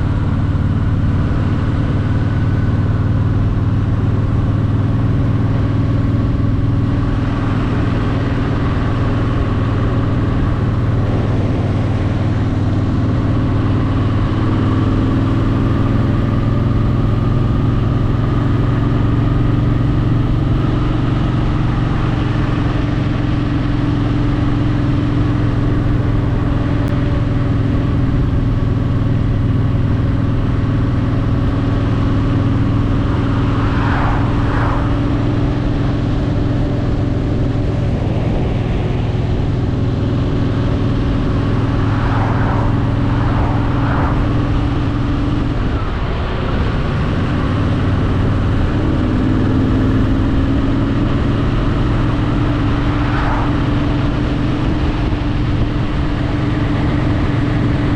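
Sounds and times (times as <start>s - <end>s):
motorcycle engine running: 0.0s - 57.9s
wind noise: 24.5s - 57.9s.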